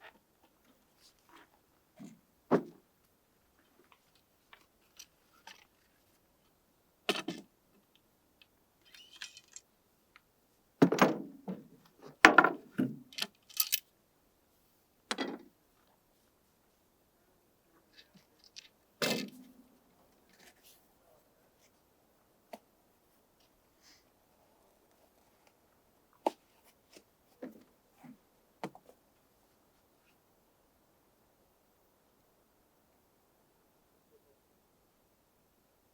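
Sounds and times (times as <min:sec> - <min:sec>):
brief rustle: 0:08.8 - 0:09.6.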